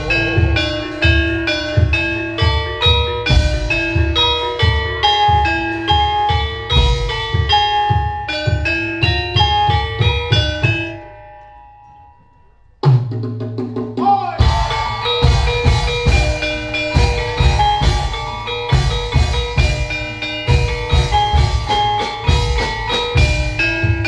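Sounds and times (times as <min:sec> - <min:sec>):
deep gong stroke ringing: 0:00.0 - 0:07.3, 0:14.4 - 0:23.8
hand drums playing: 0:00.0 - 0:11.4, 0:12.8 - 0:24.0
metallophones playing: 0:00.0 - 0:12.8, 0:14.4 - 0:24.0.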